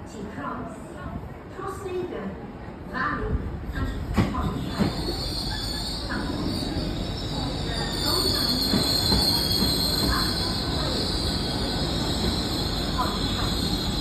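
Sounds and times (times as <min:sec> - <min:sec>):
low train rumble: 0:02.4 - 0:14.0
train pulling into platform: 0:02.6 - 0:14.0
high-pitched brake squeal: 0:04.5 - 0:14.0.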